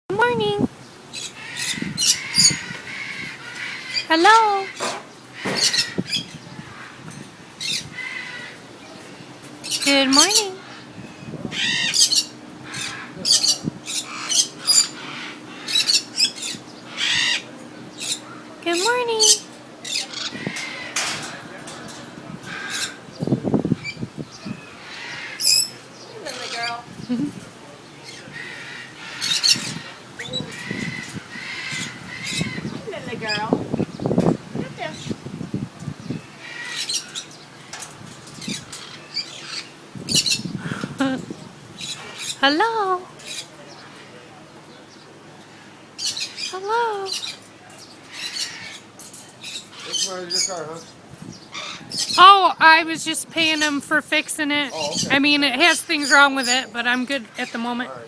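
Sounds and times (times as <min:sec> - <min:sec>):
parrots squawking and whistling: 0:00.5 - 0:07.0, 0:07.6 - 0:08.6, 0:09.6 - 0:10.9, 0:11.5 - 0:21.3, 0:23.7 - 0:27.4, 0:28.1 - 0:33.9, 0:36.1 - 0:37.7, 0:38.4 - 0:41.2, 0:46.0 - 0:52.2.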